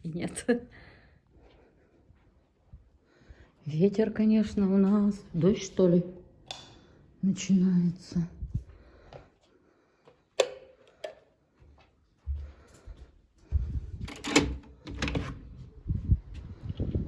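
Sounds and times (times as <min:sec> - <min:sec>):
wind rumbling on microphone: 0:08.3 - 0:08.8, 0:13.5 - 0:14.1, 0:14.9 - 0:17.0.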